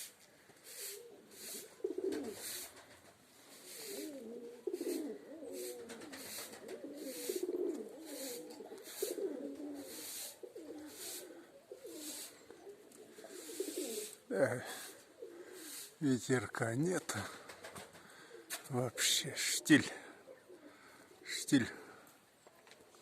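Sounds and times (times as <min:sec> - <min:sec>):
pigeons cooing: 0:00.0 - 0:16.2, 0:17.1 - 0:22.2
soft hissing: 0:00.0 - 0:16.2.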